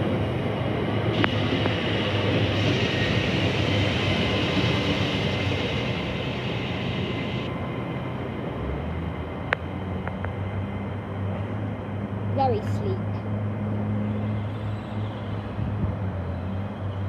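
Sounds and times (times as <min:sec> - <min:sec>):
train hum: 0:00.0 - 0:17.0
hiss: 0:01.1 - 0:07.5
faint high whine: 0:01.1 - 0:07.6.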